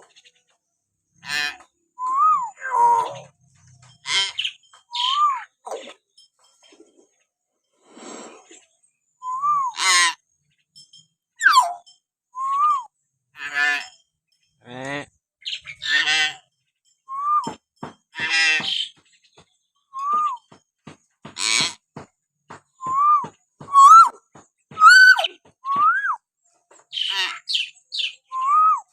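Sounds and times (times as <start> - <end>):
harsh bird calls: 0.0 - 5.6, 14.6 - 20.6, 22.7 - 26.2, 26.8 - 28.9
myna whistling calls: 2.0 - 3.3, 4.2 - 5.5, 9.2 - 9.8, 11.4 - 12.9, 22.8 - 26.2, 26.9 - 28.9.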